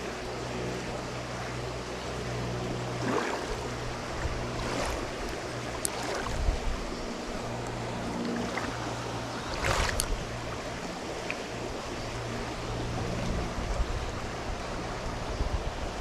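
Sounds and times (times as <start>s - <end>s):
creek water running: 0.0s - 16.0s
water swish: 2.4s - 15.0s.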